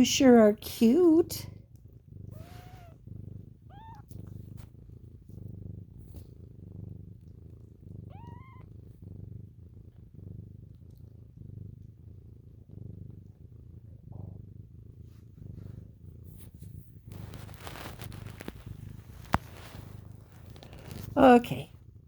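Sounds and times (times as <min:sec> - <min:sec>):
cat purring: 0:00.0 - 0:22.0
kitten mewing: 0:02.3 - 0:03.0, 0:03.7 - 0:04.3, 0:08.1 - 0:08.6.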